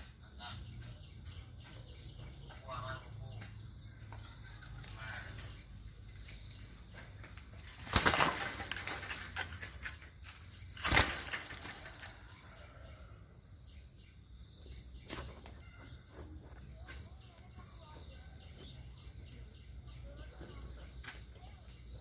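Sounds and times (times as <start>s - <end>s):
parrot wings flapping: 7.7s - 9.7s, 10.7s - 12.2s.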